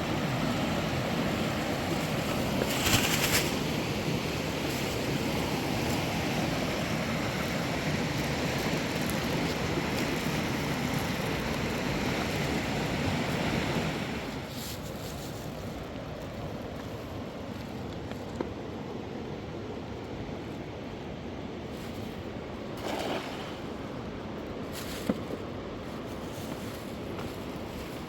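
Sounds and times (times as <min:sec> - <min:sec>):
river water rushing: 0:03.4 - 0:14.4.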